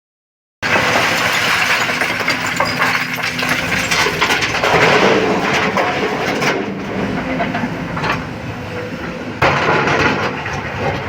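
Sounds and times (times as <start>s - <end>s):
stones scraping steel bucket: 0.7s - 6.5s
diesel engine hum: 0.7s - 11.0s.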